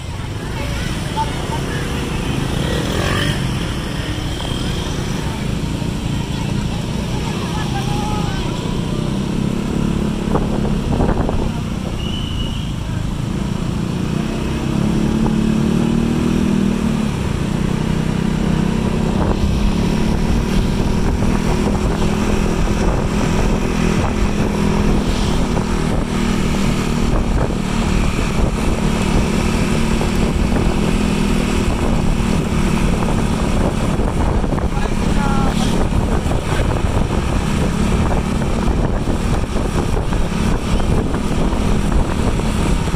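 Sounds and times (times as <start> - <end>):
vehicle engine running: 12.9 - 42.9.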